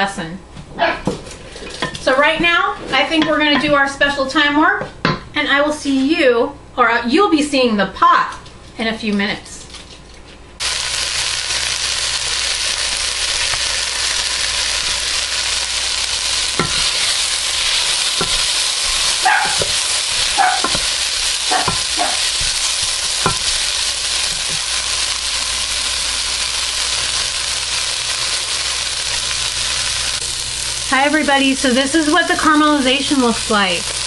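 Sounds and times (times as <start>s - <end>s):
vegetables sizzling in oil: 10.6s - 34.0s.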